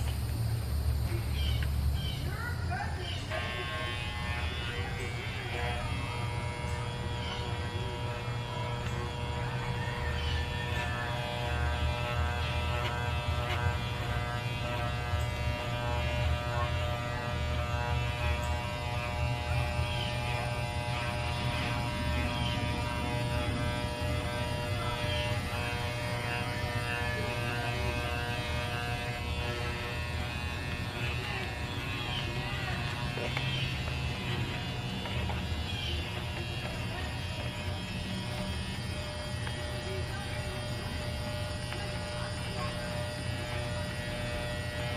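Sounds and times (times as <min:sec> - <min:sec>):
electric hair clippers buzzing: 0:00.0 - 0:44.9.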